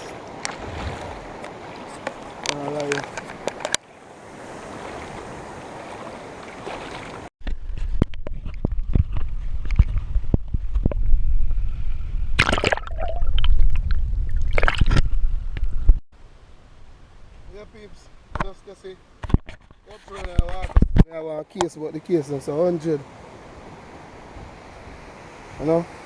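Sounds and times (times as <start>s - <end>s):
rush of flowing water: 0.0s - 7.3s, 21.8s - 26.0s
water splashes: 0.0s - 7.3s, 12.4s - 15.2s
water sloshing and knocks: 12.4s - 15.2s.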